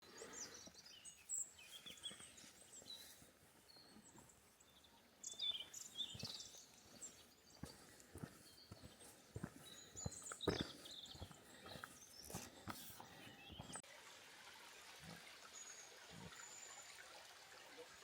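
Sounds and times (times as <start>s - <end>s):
birds chirping: 0.0s - 13.8s.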